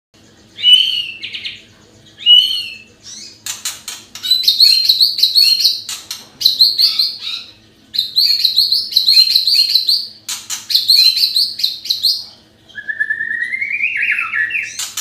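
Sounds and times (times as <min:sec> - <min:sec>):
bird singing whistled phrases: 0:00.6 - 0:01.6, 0:04.2 - 0:05.8, 0:06.4 - 0:14.9.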